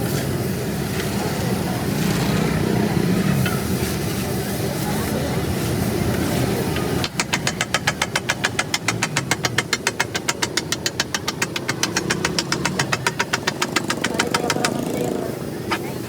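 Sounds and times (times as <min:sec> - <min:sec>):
metal spatulas striking griddle: 0:07.0 - 0:14.8.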